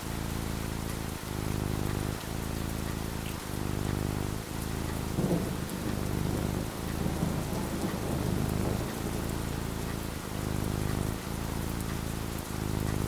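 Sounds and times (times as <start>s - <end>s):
rain falling: 0.0s - 13.0s
thunder rumbling: 5.0s - 11.2s.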